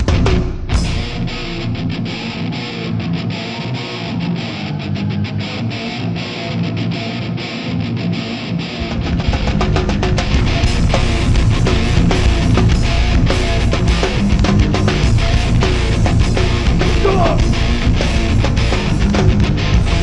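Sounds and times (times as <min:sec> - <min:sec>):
bass and drums: 0:00.0 - 0:02.6, 0:08.8 - 0:20.0
distorted electric guitar: 0:00.0 - 0:20.0
hardcore band playing live: 0:00.0 - 0:20.0.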